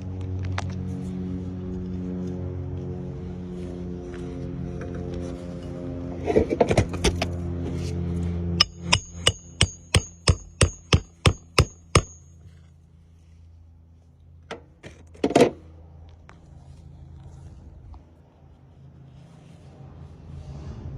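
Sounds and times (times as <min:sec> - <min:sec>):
hammer driving nails: 0:08.6 - 0:12.2.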